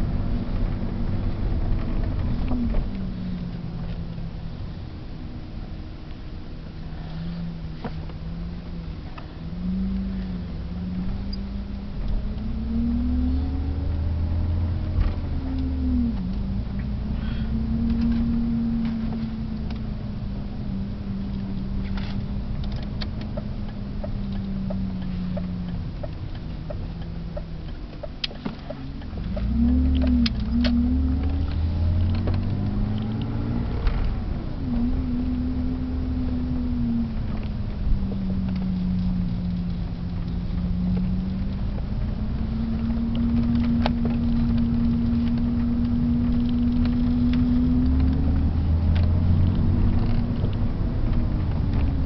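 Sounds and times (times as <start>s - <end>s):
car engine revving: 0.0s - 52.0s
regular ticking: 22.3s - 33.3s.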